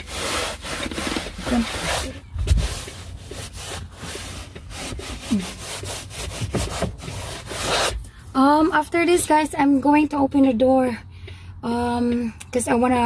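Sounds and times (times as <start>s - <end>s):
damp rag rubbing floor: 0.0s - 8.0s.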